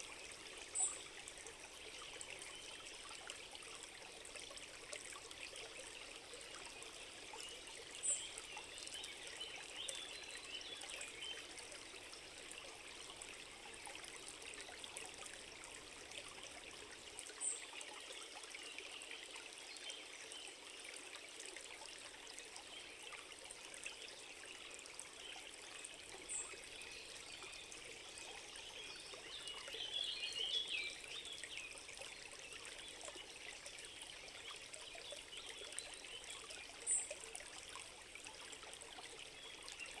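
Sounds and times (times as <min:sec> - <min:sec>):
stream running: 0:00.0 - 0:40.0.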